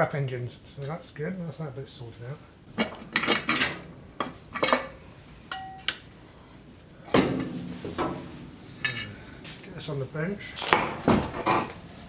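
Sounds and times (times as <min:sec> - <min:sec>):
metal tools clinking and clattering: 0:10.6 - 0:10.9
loud metal clank: 0:10.6 - 0:11.2.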